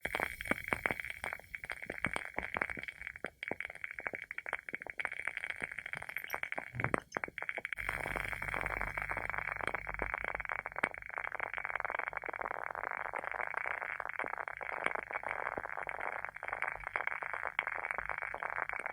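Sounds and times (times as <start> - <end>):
candle wick crackling: 0.1 - 18.9.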